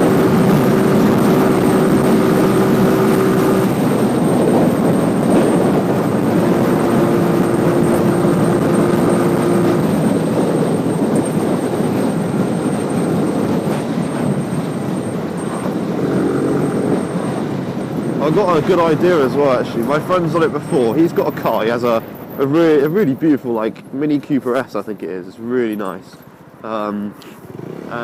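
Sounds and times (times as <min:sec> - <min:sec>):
motorcycle engine running: 0:00.0 - 0:18.6
wind rush on microphone: 0:00.0 - 0:22.8.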